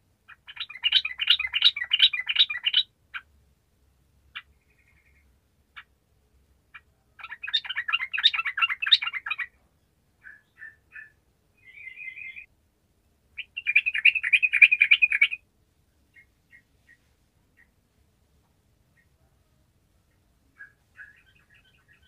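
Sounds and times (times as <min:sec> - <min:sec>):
bird chattering song: 0:00.3 - 0:03.3, 0:04.3 - 0:05.9, 0:06.7 - 0:09.6, 0:10.2 - 0:12.5, 0:13.4 - 0:15.4, 0:16.1 - 0:17.0, 0:20.1 - 0:22.0.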